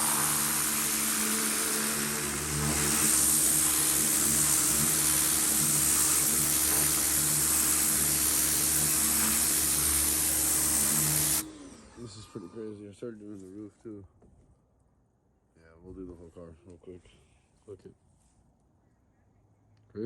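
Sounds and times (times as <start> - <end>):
water spray hissing: 0.0 - 11.4
pressure washer motor drone: 0.0 - 12.2.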